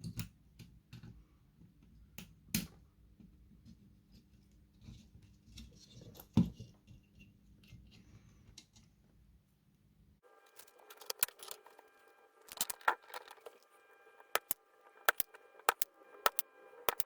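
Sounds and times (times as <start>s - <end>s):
steady multi-tone hum: 10.2s - 17.0s
sharp clicks and taps: 10.6s - 11.6s, 12.5s - 13.6s, 14.2s - 17.0s.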